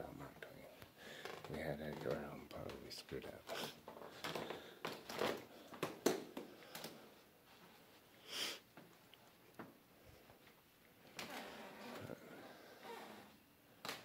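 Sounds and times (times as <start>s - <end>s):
faint knocks and rustles: 0.2s - 8.1s
person sniffing: 8.2s - 8.7s.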